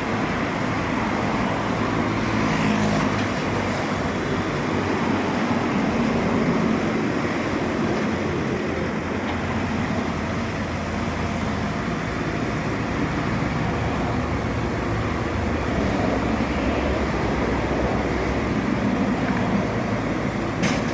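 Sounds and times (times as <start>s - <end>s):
road noise: 0.0s - 20.9s
vehicle engine hum: 0.0s - 20.9s.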